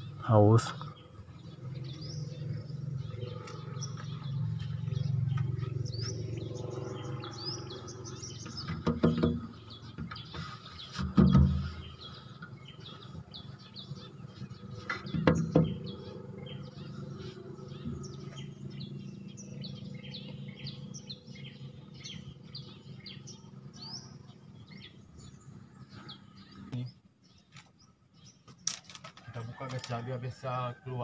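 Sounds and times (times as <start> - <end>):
small birds chirping: 0.0 - 31.0
loud knocks: 8.5 - 9.6, 11.0 - 11.9, 14.9 - 15.9.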